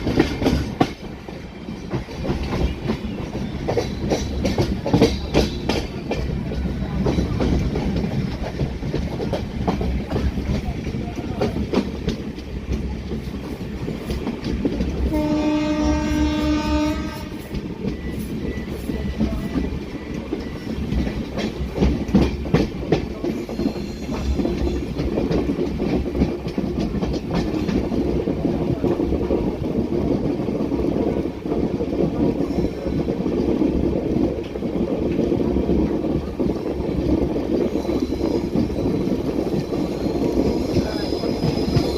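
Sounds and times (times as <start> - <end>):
wheels clicking over rail joints: 0.0 - 15.2, 17.4 - 41.9
train rumbling on rails: 0.0 - 41.9
train horn: 15.1 - 17.6.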